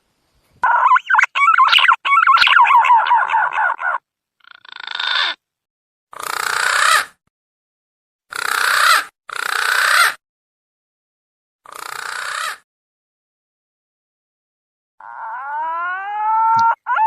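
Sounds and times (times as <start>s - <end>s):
pigeon harsh calls: 0.6s - 5.4s, 6.2s - 7.2s, 8.3s - 10.2s, 11.7s - 12.6s, 15.1s - 17.0s.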